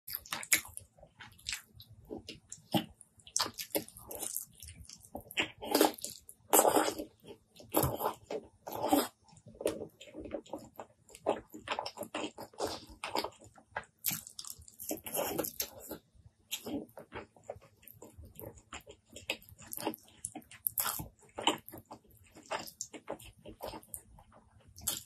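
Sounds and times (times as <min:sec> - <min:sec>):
wet chewing: 0:00.1 - 0:25.0.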